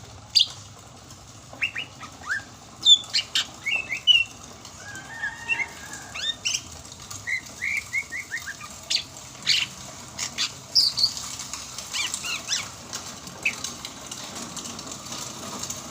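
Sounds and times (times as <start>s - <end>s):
bird singing chirps and whistles: 1.6s - 4.3s, 7.2s - 9.7s.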